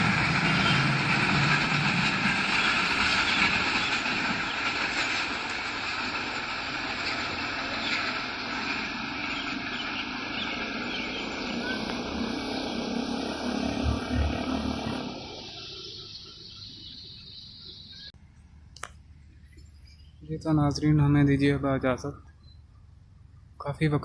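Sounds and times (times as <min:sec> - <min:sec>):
passenger train rumbling and rattling: 0:00.0 - 0:18.1.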